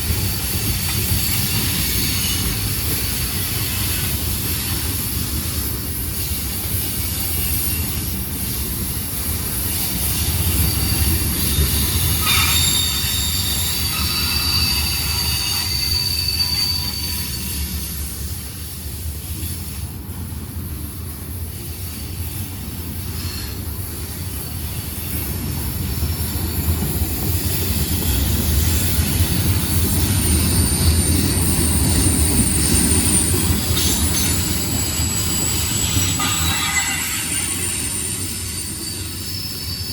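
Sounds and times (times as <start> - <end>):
train wheels rumbling on rails: 0.0 - 39.9
high-pitched wheel squeal: 10.2 - 18.2, 30.3 - 39.9.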